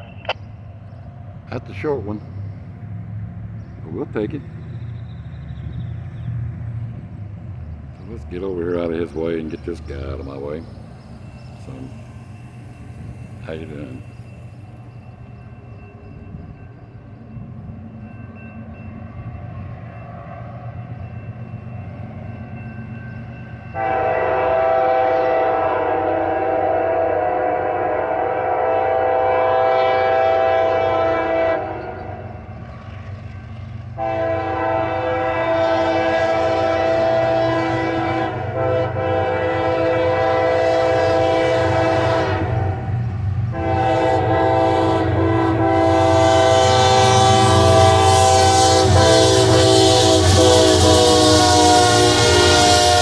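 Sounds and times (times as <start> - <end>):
low locomotive rumble: 0.0 - 53.0
locomotive air horn blasts: 23.8 - 32.2, 34.0 - 42.9, 43.5 - 53.0.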